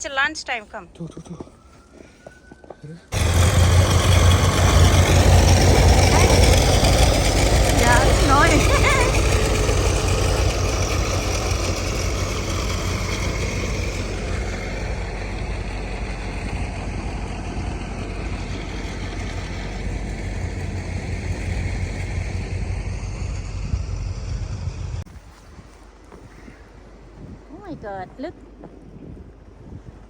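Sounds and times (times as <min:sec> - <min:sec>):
engine running: 0:03.1 - 0:25.1.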